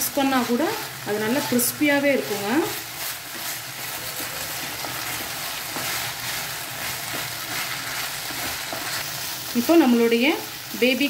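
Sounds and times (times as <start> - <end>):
food sizzling in a pan: 0.0 - 11.0
spoon scraping a pan: 1.2 - 9.2.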